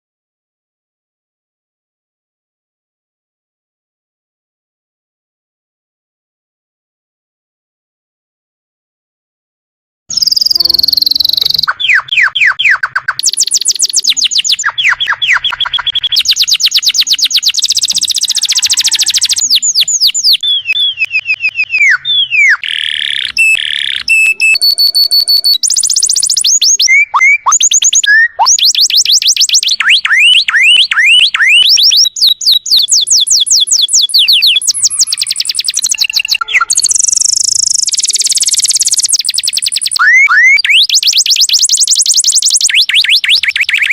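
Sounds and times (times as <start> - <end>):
canary singing: 10.1 - 43.9.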